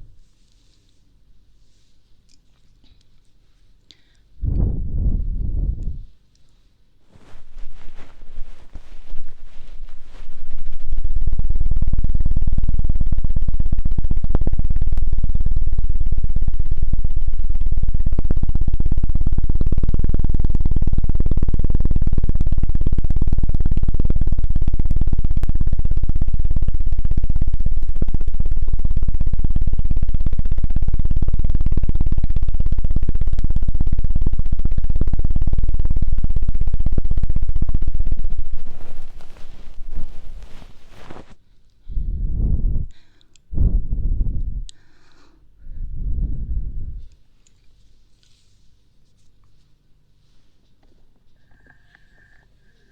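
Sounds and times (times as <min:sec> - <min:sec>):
fluttering strokes on microphone: 0:04.4 - 0:06.2, 0:07.0 - 0:12.6, 0:33.0 - 0:44.7.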